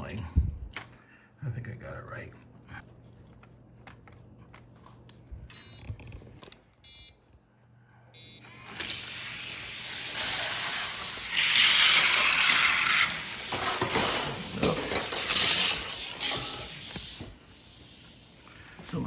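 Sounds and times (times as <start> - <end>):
short electronic beeps: 6.8 - 7.2, 8.2 - 8.4
toy cars rolling down a track: 8.5 - 17.3.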